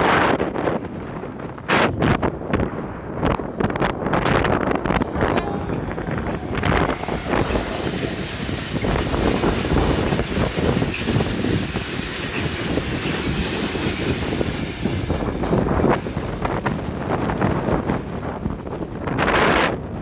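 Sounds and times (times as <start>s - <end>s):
train wheels rumbling on rails: 0.0s - 20.0s
wheels clicking over rail joints: 5.4s - 19.2s.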